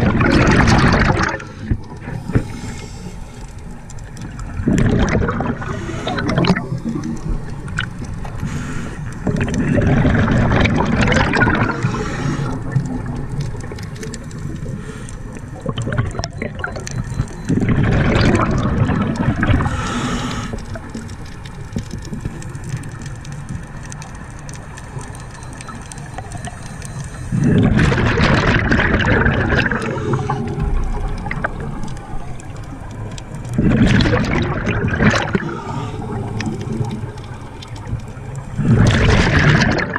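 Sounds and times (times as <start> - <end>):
diver exhaling bubbles underwater: 0.0 - 21.1, 25.9 - 32.3, 33.2 - 39.9.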